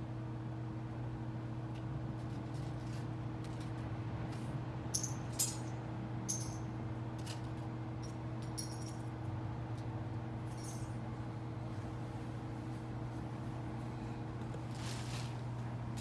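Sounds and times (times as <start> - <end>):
steady low hum: 0.0 - 16.0
metallic clinks and jingles: 8.4 - 9.1, 10.5 - 11.0.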